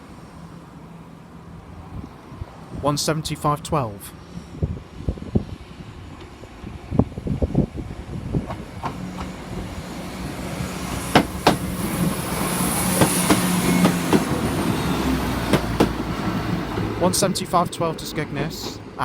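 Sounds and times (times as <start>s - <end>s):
diesel train engine: 0.0s - 19.0s
wheels clicking over rail joints: 10.4s - 17.0s.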